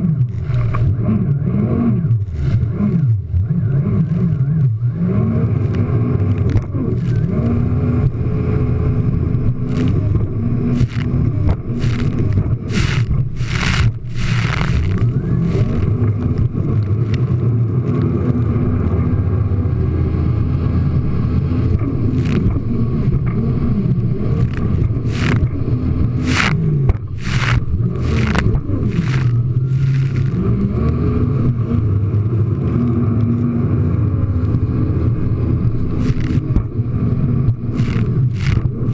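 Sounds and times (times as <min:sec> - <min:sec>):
jet ski engine revving: 0:00.0 - 0:38.9
short rushing bursts: 0:10.7 - 0:16.0, 0:24.3 - 0:30.5.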